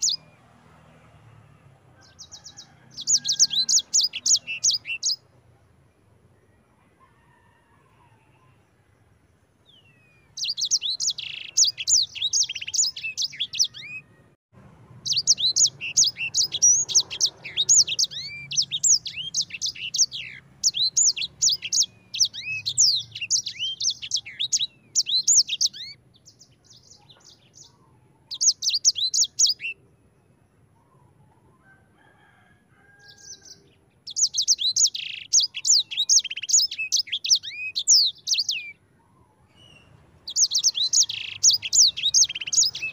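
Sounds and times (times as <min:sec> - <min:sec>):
finch trilling song: 0:00.0 - 0:00.3, 0:02.0 - 0:05.3, 0:09.7 - 0:14.2, 0:15.0 - 0:29.8, 0:33.1 - 0:38.8, 0:39.4 - 0:42.9.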